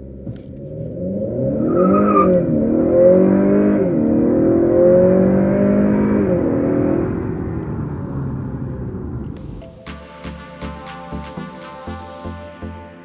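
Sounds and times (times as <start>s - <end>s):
car engine accelerating hard: 0.0s - 9.5s.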